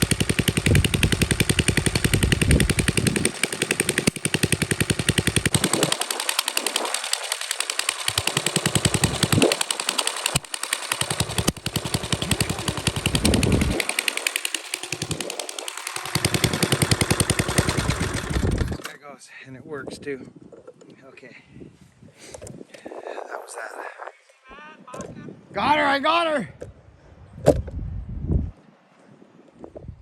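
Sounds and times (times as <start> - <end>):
chainsaw cutting wood: 0.0 - 18.9.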